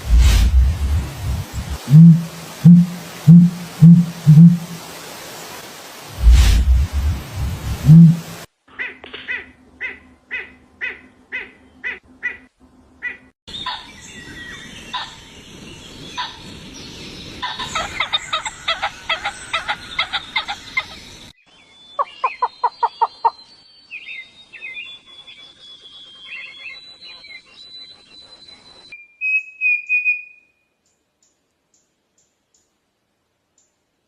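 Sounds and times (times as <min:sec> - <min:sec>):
bird chattering: 0:01.8 - 0:04.8.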